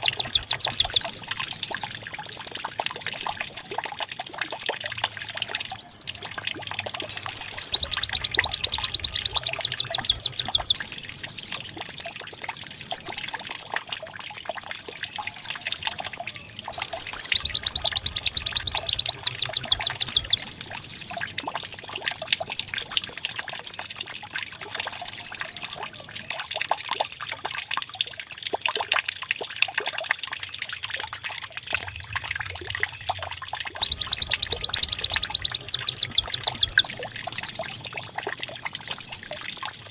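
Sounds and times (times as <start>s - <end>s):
bird song with fast trills: 0.0s - 26.0s, 33.8s - 39.9s.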